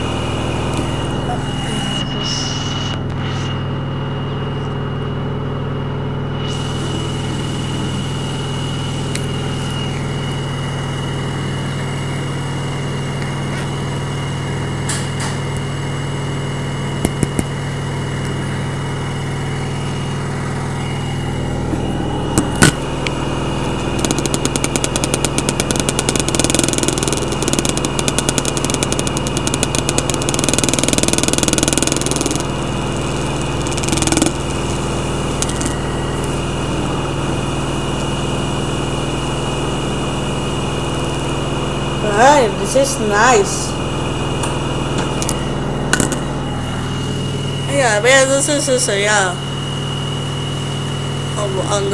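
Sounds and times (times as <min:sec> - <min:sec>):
washing machine spinning: 0:00.0 - 0:51.9
sharp clicks: 0:17.0 - 0:17.6, 0:22.4 - 0:36.4, 0:40.8 - 0:41.4
fast rattling: 0:23.8 - 0:34.7.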